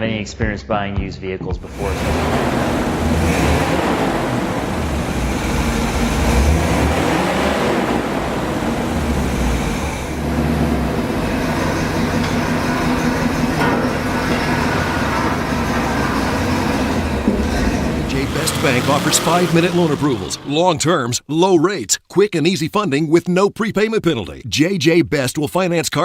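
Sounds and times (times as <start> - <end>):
engine rumble: 1.6 - 20.8
road noise: 1.6 - 20.8.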